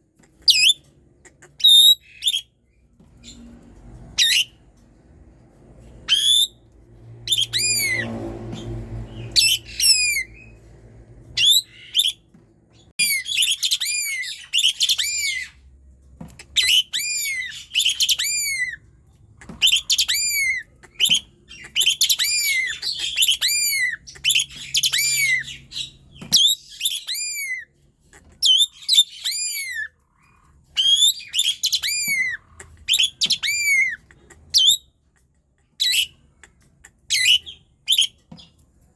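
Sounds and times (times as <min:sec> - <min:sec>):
starling singing whistled notes: 0:01.6 - 0:02.5, 0:04.2 - 0:04.6, 0:06.1 - 0:06.6, 0:07.3 - 0:08.1, 0:09.1 - 0:10.6, 0:11.4 - 0:12.2, 0:13.0 - 0:15.5, 0:16.6 - 0:18.8, 0:19.6 - 0:27.6, 0:30.8 - 0:34.0, 0:34.6 - 0:34.8, 0:37.1 - 0:38.2.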